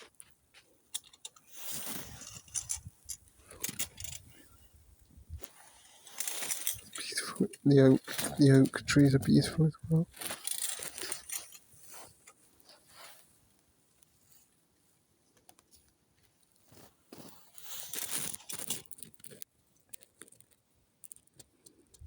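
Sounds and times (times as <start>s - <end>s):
dry leaves rustling and crunching: 17.6s - 19.4s.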